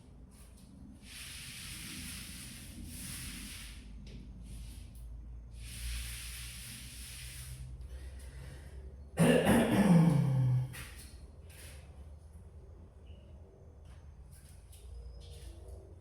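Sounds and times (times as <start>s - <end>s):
paint roller rubbing on wall: 0.2s - 8.2s
person grunting: 9.7s - 10.8s.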